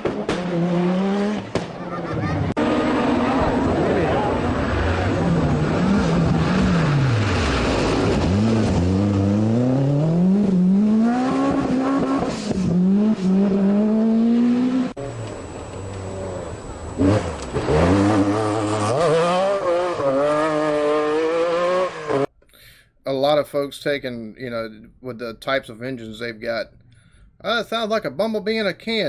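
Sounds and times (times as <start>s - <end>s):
rally car engines accelerating: 0.0s - 22.3s.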